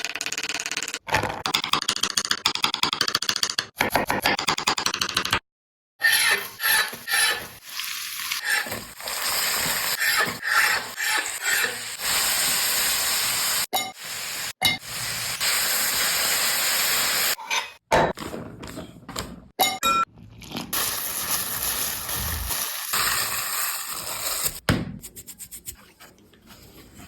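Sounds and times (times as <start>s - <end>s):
stirring and scraping in a pan: 6.0s - 12.2s
food sizzling in hot oil: 6.4s - 17.4s, 20.8s - 24.6s.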